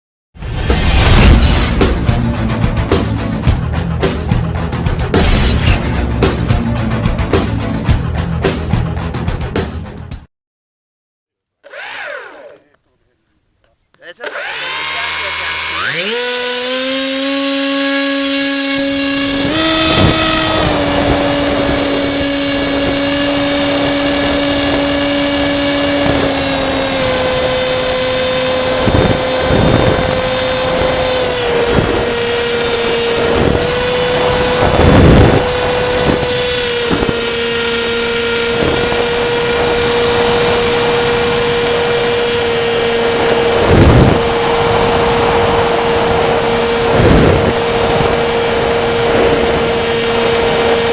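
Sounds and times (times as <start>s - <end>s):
whooshes of air: 0.4s - 2.3s
drone motors and propellers whining: 0.4s - 8.0s, 11.6s - 12.8s, 14.2s - 50.9s.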